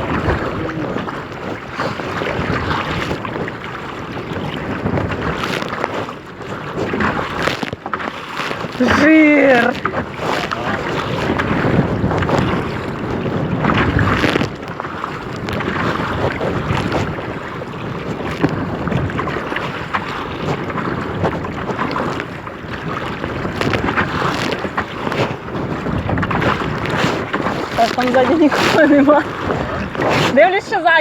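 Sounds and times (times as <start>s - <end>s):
water splashing around kayak: 0.0s - 31.0s
wind buffeting microphone: 0.0s - 31.0s.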